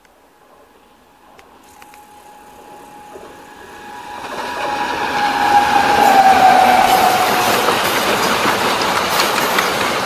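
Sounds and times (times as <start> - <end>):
train approaching: 0.0 - 10.0
steady high tone: 0.8 - 8.3.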